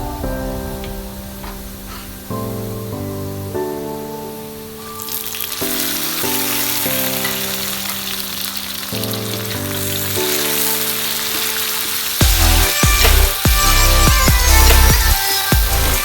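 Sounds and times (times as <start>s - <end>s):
food sizzling in hot oil: 4.8s - 16.0s.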